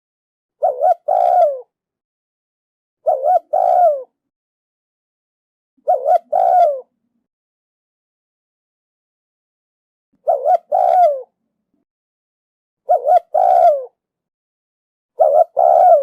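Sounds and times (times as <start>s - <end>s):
dove cooing: 0.6s - 1.8s, 3.0s - 4.2s, 5.8s - 7.0s, 10.2s - 11.4s, 12.9s - 14.0s, 15.2s - 16.0s.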